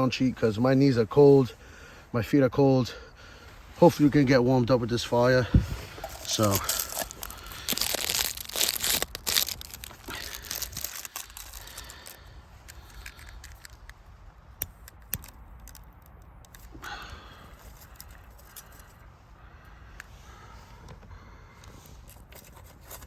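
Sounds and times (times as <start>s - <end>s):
dry tinder crackling and tearing: 5.5s - 19.1s.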